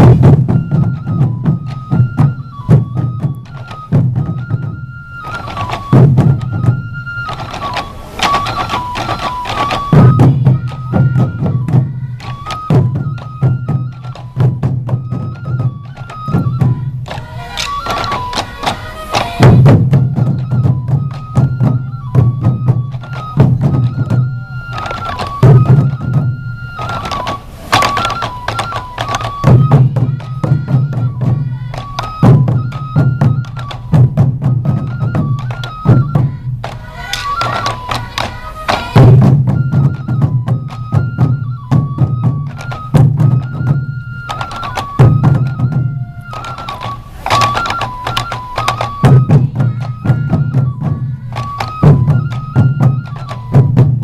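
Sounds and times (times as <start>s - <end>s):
bamboo flute melody: 0.0s - 54.0s
taiko drums beating: 0.0s - 54.0s.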